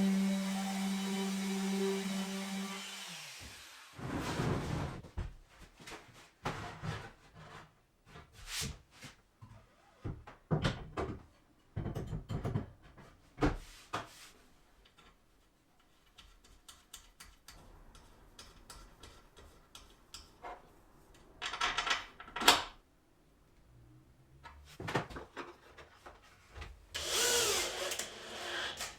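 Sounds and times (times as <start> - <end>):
wooden parts and tools knocking: 10.5 - 12.9.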